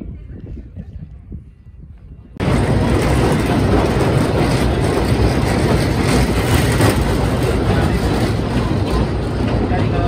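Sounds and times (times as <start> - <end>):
train wheels rumbling and rattling: 2.4 - 10.0.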